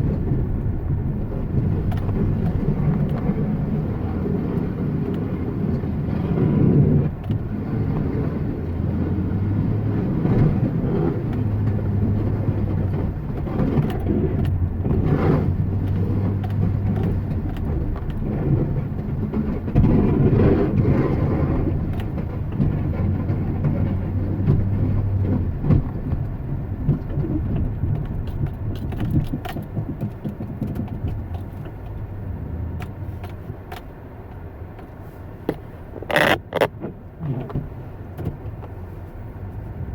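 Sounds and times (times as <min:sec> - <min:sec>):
engine humming: 0:00.0 - 0:39.9.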